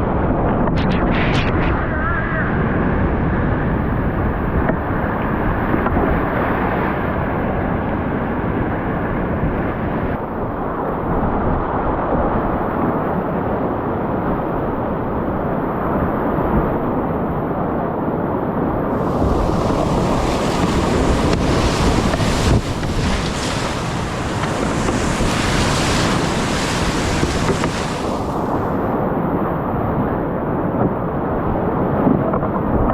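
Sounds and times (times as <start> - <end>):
rushing whitewater: 18.9 - 29.2.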